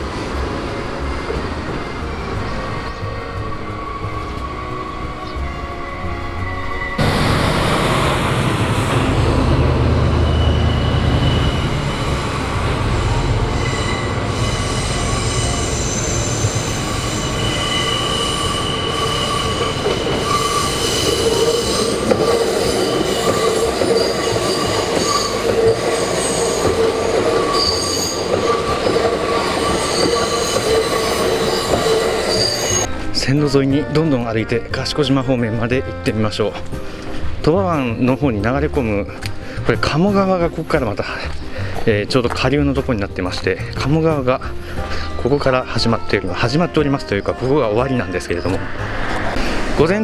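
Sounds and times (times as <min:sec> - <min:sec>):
train running rumble: 0:00.0 - 0:34.0
steel wheels squealing on rail: 0:00.1 - 0:32.9
level-crossing bell ringing: 0:10.0 - 0:32.9.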